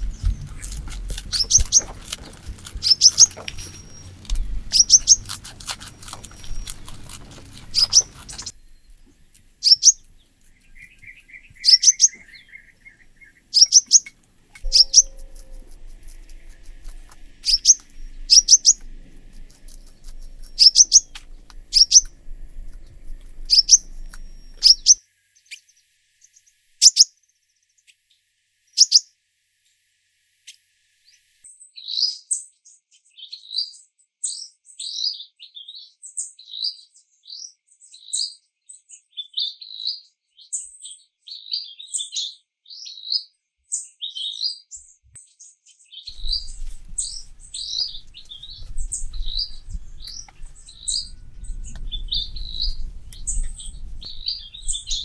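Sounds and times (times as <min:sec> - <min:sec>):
small birds chirping: 0:00.0 - 0:25.6, 0:26.8 - 0:27.1, 0:28.8 - 0:29.0, 0:46.1 - 0:55.0.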